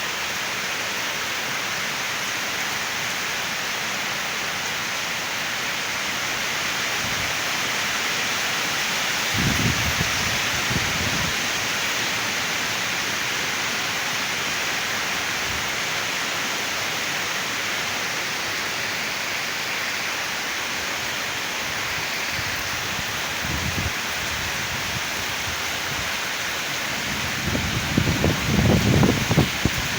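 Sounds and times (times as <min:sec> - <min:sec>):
heavy rain pouring: 0:00.0 - 0:29.9
wind gusts rumbling on microphone: 0:09.2 - 0:11.7, 0:21.7 - 0:29.9.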